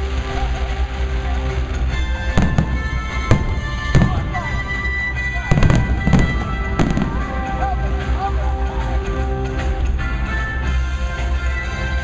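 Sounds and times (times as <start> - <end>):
steady music: 0.0 - 12.0
fireworks bangs: 1.8 - 7.7.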